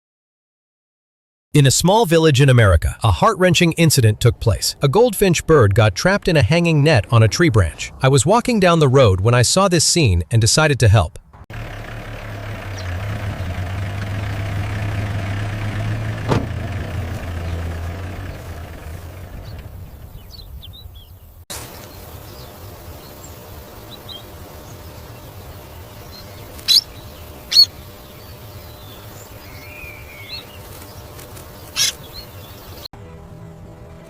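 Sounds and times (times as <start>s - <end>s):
small birds chirping: 12.6s - 13.7s, 17.1s - 32.9s
faint outdoor hiss: 21.0s - 34.0s
sharp short bird calls: 22.3s - 32.9s.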